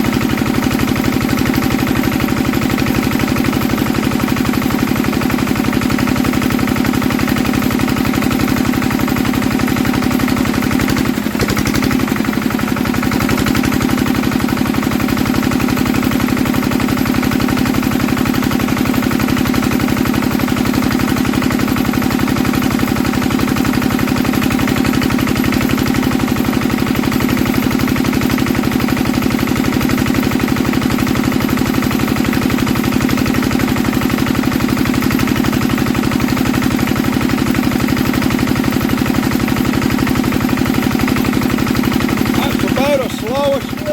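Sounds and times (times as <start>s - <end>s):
diesel engine running: 0.0s - 16.5s, 38.7s - 43.9s.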